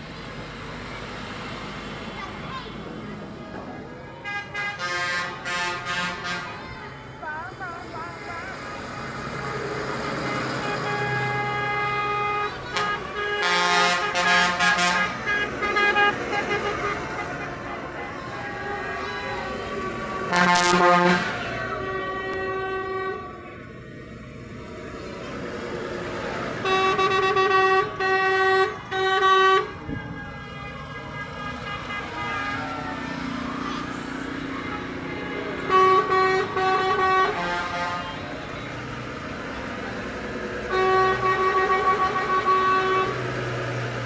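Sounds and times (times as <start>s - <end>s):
engines running: 0.0s - 44.0s
vehicle horns sounding: 4.2s - 6.7s, 10.1s - 23.4s, 26.6s - 38.7s, 40.6s - 43.5s.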